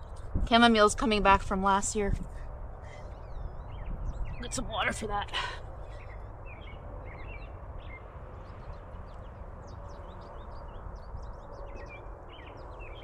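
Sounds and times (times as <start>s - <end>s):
small birds chirping: 2.7s - 13.0s.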